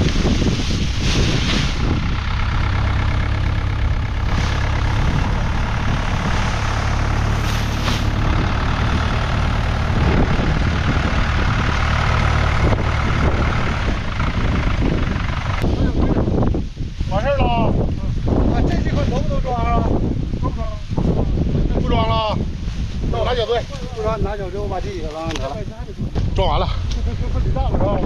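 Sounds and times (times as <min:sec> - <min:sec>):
vehicle engine idling: 0:00.0 - 0:16.4
wind buffeting microphone: 0:00.0 - 0:28.0.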